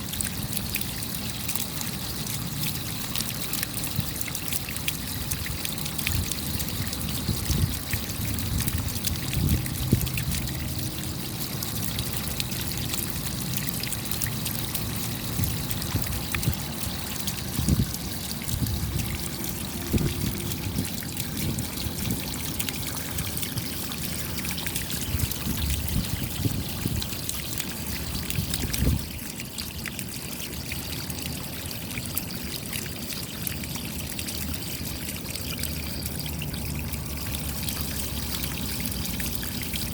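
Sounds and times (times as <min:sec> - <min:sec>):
water trickling and pouring: 0:00.0 - 0:39.9
raindrop ticks: 0:00.1 - 0:29.2.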